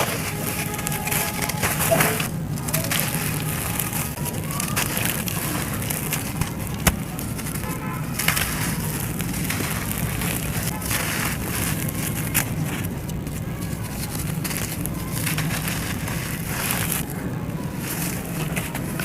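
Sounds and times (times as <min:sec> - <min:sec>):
sharp crack: 0:00.0 - 0:13.3
brittle material crumbling and crushing: 0:00.0 - 0:19.0
steady low hum: 0:00.0 - 0:19.0.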